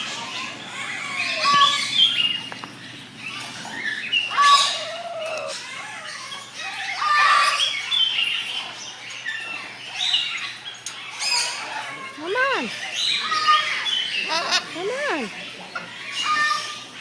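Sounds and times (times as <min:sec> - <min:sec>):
parrot calling and squawking: 0:03.2 - 0:08.5, 0:11.1 - 0:15.4.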